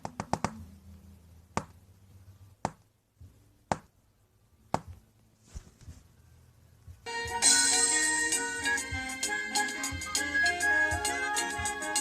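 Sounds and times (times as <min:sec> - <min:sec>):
faint low hum: 0:00.0 - 0:07.4.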